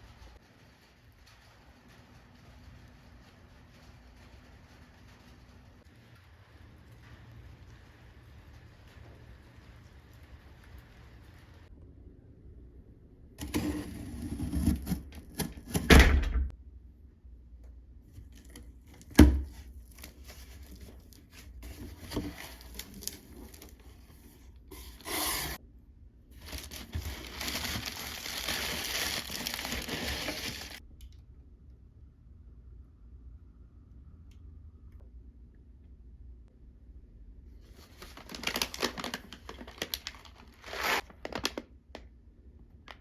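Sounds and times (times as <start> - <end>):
rustling and crinkling: 18.0 - 25.6, 26.3 - 30.8, 37.6 - 42.1.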